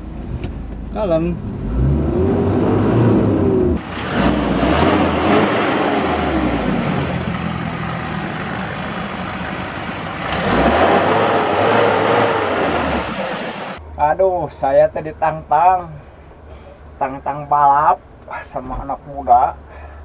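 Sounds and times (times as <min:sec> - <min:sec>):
car engine revving: 0:01.3 - 0:13.8.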